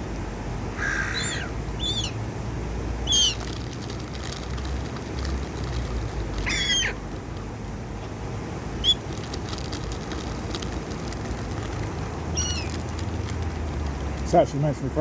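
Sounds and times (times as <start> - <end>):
gulls calling: 0.6 - 3.6, 6.4 - 7.1, 8.8 - 9.1, 12.2 - 13.0.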